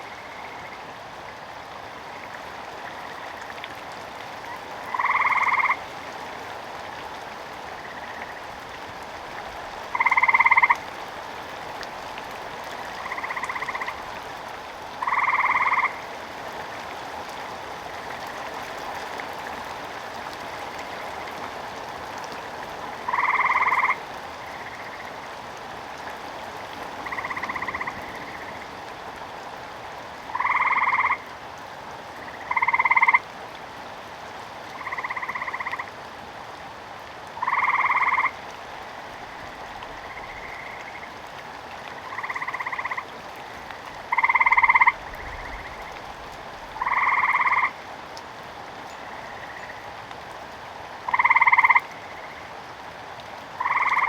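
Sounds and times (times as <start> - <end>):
frog croaking: 0.0 - 0.8, 4.5 - 5.9, 7.8 - 8.6, 9.9 - 10.8, 13.0 - 14.1, 15.0 - 16.1, 23.1 - 25.2, 27.0 - 28.7, 30.3 - 31.3, 32.2 - 33.2, 34.7 - 35.9, 37.4 - 38.4, 39.2 - 41.2, 42.0 - 43.1, 44.0 - 46.0, 46.8 - 47.8, 48.9 - 49.9, 51.1 - 52.5, 53.6 - 54.0
rain hissing: 38.6 - 49.4.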